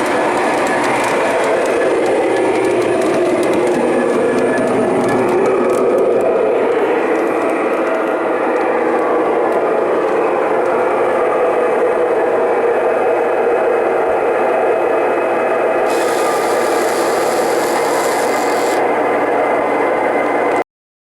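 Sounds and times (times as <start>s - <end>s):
model train wheels rumbling on rail: 0.0s - 20.6s
high hiss: 15.8s - 18.8s.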